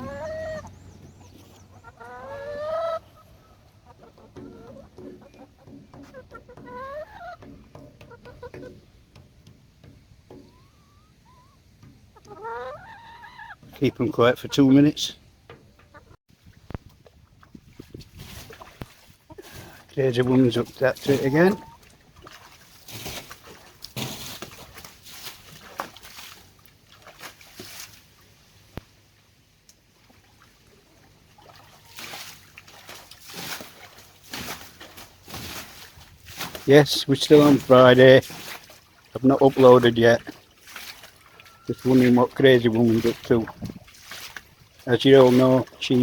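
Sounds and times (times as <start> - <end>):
hens clucking and calling: 0.0 - 16.2, 19.2 - 22.3, 39.2 - 46.0
water sloshing and splashing: 0.0 - 46.0.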